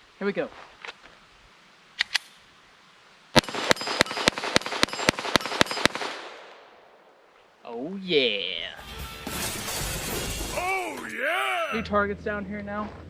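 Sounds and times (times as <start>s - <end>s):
pistol firing rapid shots: 3.4s - 6.4s.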